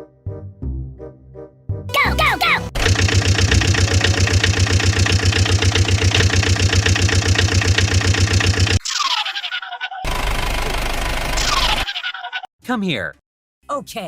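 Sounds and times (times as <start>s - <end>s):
large engine throbbing: 2.7s - 8.8s, 10.1s - 11.6s.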